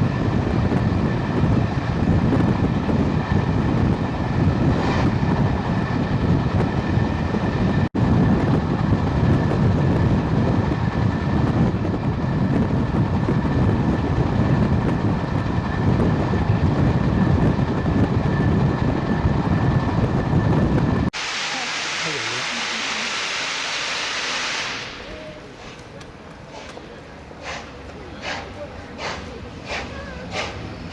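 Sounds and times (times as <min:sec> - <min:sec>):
train wheels rumbling on track: 0:00.0 - 0:30.9.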